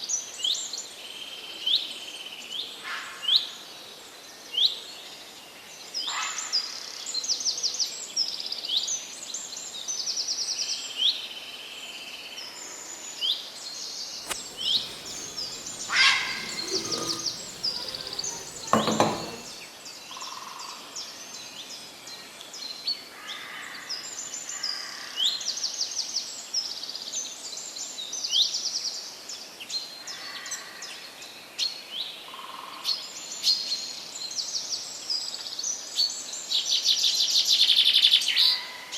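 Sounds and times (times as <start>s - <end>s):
birds chirping and trilling: 14.4s - 19.6s.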